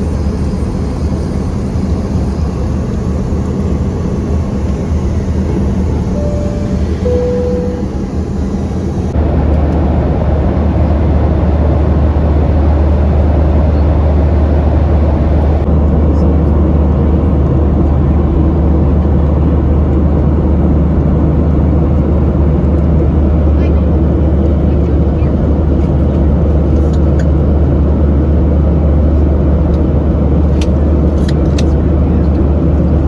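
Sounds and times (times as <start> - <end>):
aircraft cabin rumble: 0.0 - 33.0
two-note falling chime: 6.0 - 9.2.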